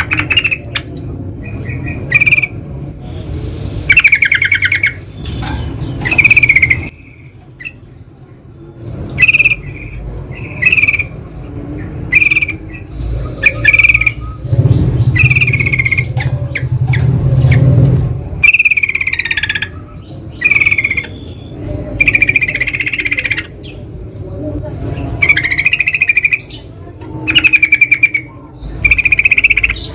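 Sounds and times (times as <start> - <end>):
bulbuls chattering: 3.9 - 29.9
low rumble: 12.9 - 18.4.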